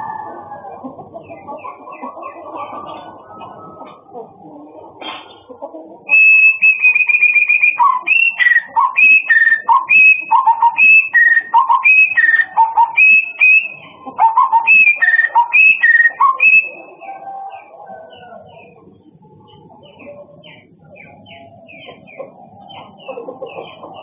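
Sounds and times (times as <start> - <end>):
songbird whistling: 6.1 - 16.8.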